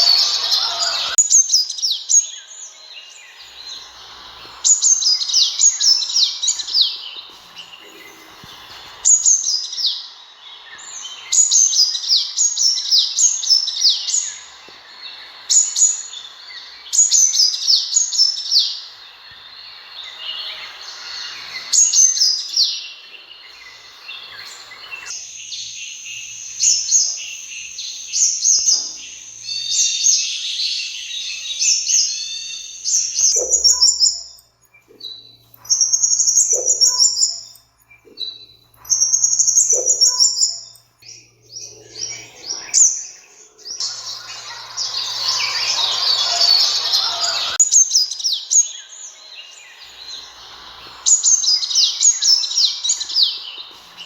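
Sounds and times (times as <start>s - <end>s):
sunbirds chirping and trilling: 0.0s - 54.0s.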